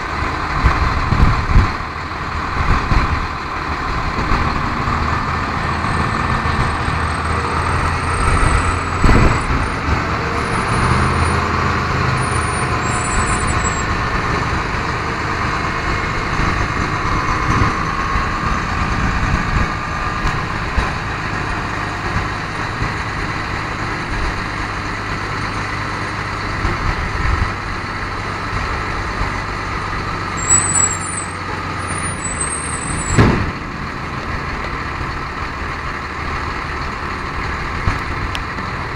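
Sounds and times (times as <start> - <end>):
diesel engine idling: 0.0 - 38.9
thin high chirps: 30.4 - 31.4.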